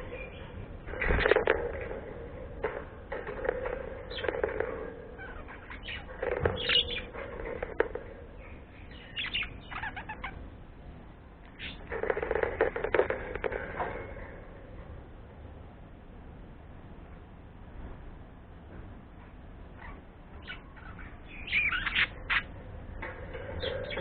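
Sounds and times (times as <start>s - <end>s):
bird chirps: 5.2s - 7.6s, 8.4s - 10.4s, 11.5s - 11.9s, 19.8s - 22.5s.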